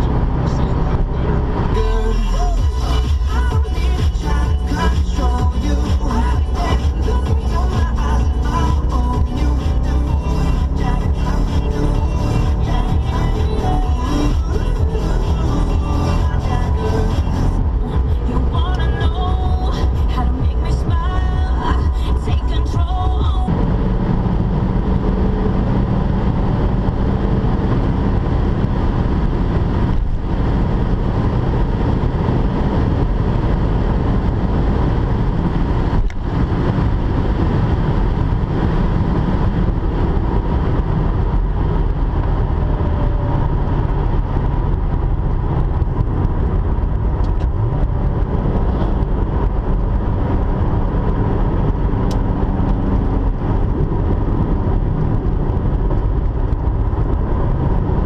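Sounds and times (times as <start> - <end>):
car engine rumbling: 0.0 - 58.0
road and wind noise: 0.0 - 58.0.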